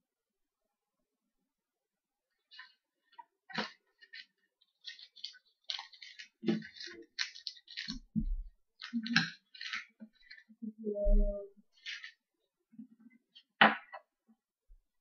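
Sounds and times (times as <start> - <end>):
cards being handled: 2.6 - 8.0, 11.8 - 12.2
wrapper crinkling and tearing: 3.5 - 8.1, 8.8 - 10.5, 11.7 - 12.2.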